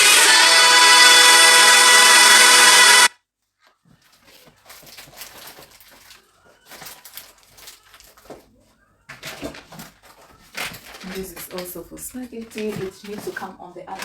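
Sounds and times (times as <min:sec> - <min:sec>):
background music: 0:00.0 - 0:03.1
food wrappers crinkling: 0:03.5 - 0:14.0.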